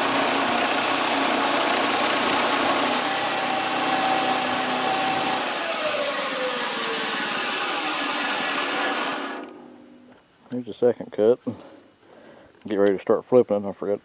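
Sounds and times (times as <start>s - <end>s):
bandsaw blade hissing through log: 0.0s - 9.9s.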